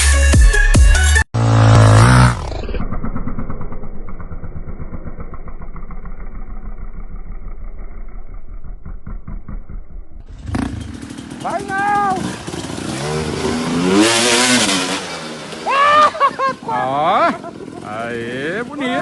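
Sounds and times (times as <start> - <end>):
loud electronic music: 0.0 - 1.2
motocross bike engine running: 1.4 - 19.0.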